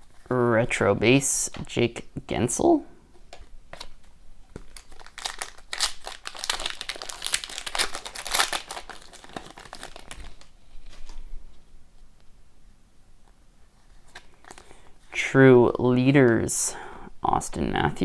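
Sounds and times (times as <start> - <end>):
foil pack crinkling: 3.8 - 11.2, 14.0 - 15.0.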